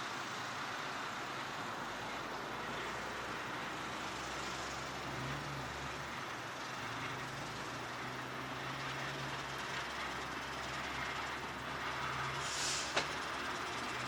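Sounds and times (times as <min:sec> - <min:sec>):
railcar engine humming: 0:06.0 - 0:14.0.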